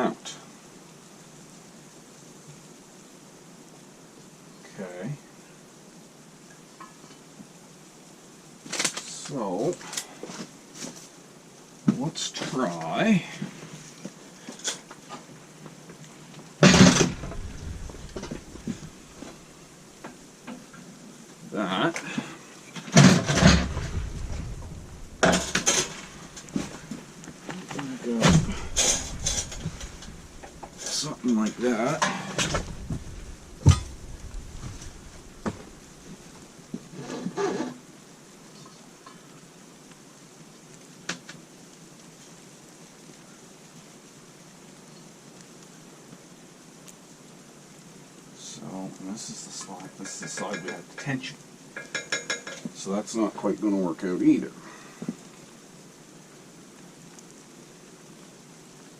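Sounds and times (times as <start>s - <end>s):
loud metal clunk: 16.6s - 19.4s, 23.0s - 26.7s, 28.2s - 31.0s, 32.0s - 35.9s
steel parts rattling and scraping: 16.7s - 19.5s, 23.0s - 26.9s, 28.1s - 36.2s
light metal knocks and clicks: 32.0s - 35.8s.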